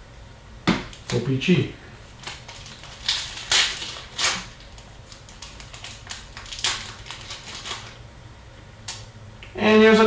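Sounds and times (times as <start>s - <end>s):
cards rustling: 2.1s - 8.0s.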